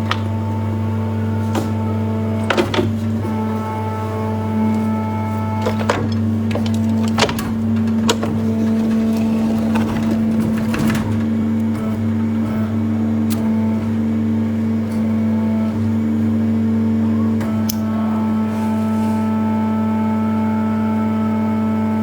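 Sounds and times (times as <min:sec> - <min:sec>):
electric motor hum: 0:00.2 - 0:16.4
gravel rattling: 0:05.7 - 0:11.7.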